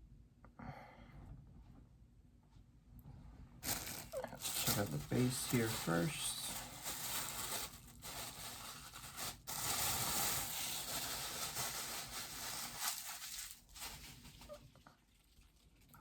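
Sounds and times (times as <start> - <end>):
packaging rustling: 3.6 - 14.7.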